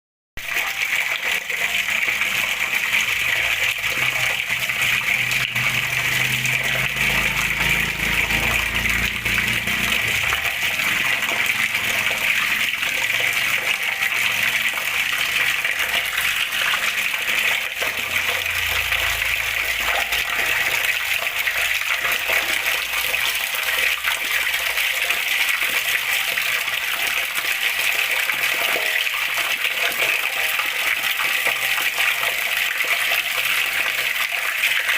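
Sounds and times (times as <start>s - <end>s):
water rushing and splashing: 0.4s - 34.9s.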